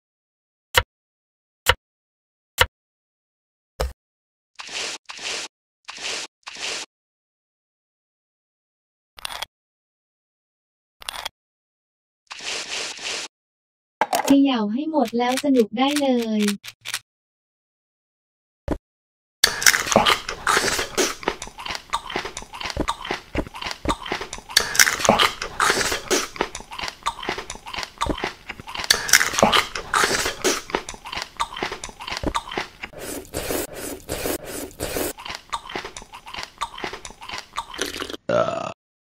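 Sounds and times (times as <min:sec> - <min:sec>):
crunching and chewing: 0:19.4 - 0:38.2.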